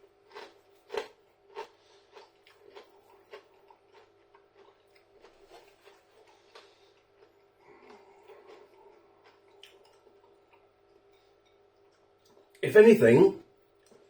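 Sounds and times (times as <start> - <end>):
crunchy chewing: 0.0 - 11.2.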